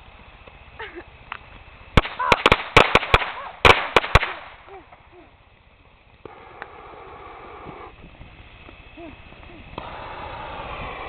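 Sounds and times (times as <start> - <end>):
firework fountain hissing: 0.0 - 11.0
fireworks bangs and pops: 0.4 - 5.1.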